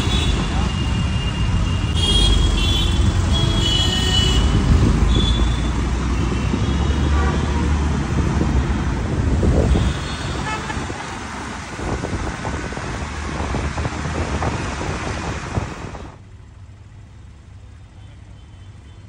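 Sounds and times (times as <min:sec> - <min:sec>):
car horns tooting: 0:00.0 - 0:07.9, 0:09.4 - 0:11.3
road noise: 0:00.0 - 0:19.0.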